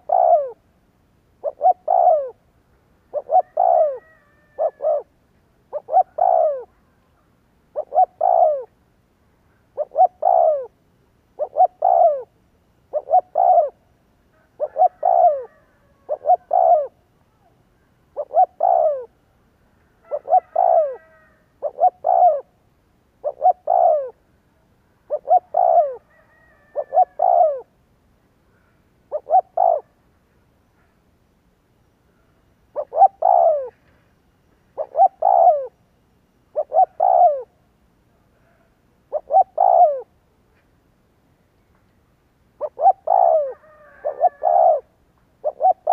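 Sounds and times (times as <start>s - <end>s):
dove cooing: 0.0s - 0.6s, 1.4s - 2.4s, 3.1s - 8.8s, 9.5s - 19.2s, 20.0s - 22.6s, 23.2s - 24.3s, 25.0s - 27.8s, 28.5s - 30.0s, 32.1s - 34.0s, 34.7s - 35.8s, 36.5s - 37.6s, 38.3s - 40.2s, 42.6s - 45.9s.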